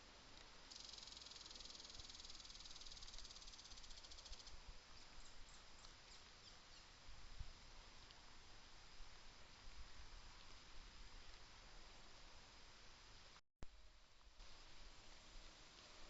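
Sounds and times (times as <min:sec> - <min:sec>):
faint high ticks: 0:00.3 - 0:04.6.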